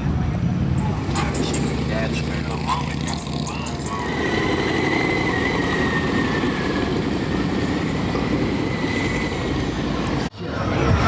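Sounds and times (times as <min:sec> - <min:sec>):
motorcycle engine at high revs: 0:00.8 - 0:10.3
thin high tyre squeal: 0:00.8 - 0:10.3.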